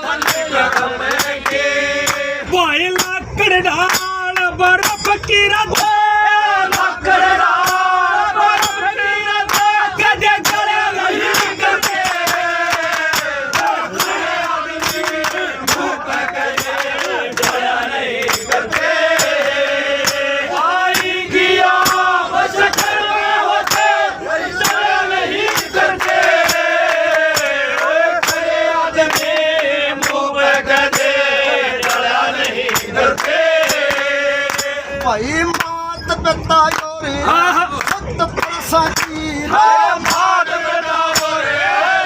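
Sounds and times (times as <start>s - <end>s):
sharp percussion strokes: 6.7s - 35.0s, 38.9s - 41.9s.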